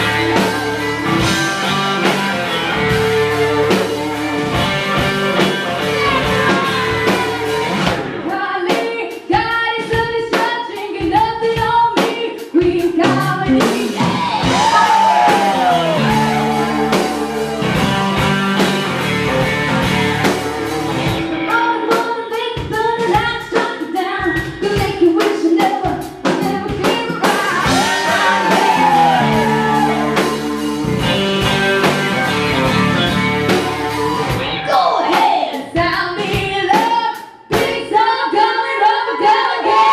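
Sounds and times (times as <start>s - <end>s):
live rock band playing: 0.0s - 37.7s
woman singing: 8.2s - 17.5s, 21.5s - 31.1s, 35.0s - 39.9s.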